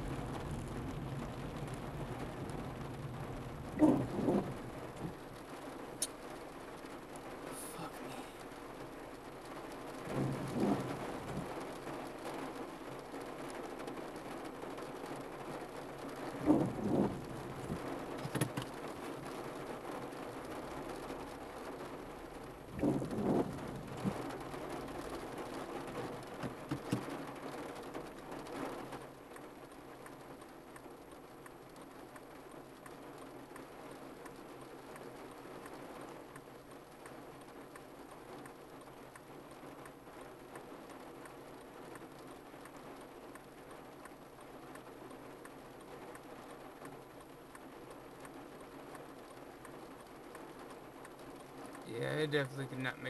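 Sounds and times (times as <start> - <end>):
rain pattering on a car: 0.0 - 53.0
short dull thumps: 16.4 - 18.7, 22.7 - 24.4.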